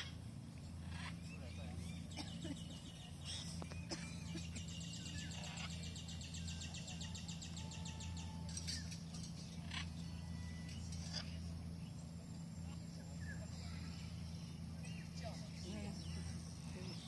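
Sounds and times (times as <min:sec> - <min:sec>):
steady low hum: 0:00.0 - 0:17.0
bird singing high trill: 0:01.0 - 0:12.1.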